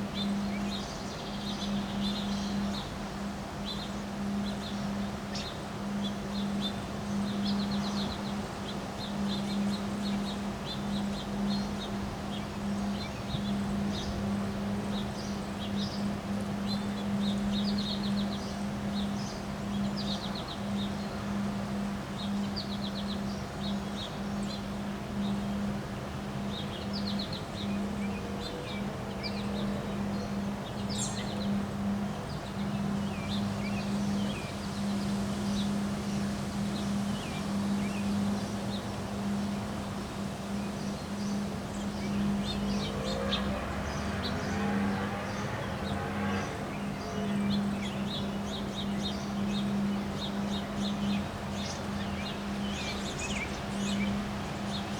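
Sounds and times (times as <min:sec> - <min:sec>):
steady low hum: 0:00.0 - 0:54.9
small birds chirping: 0:26.4 - 0:54.9.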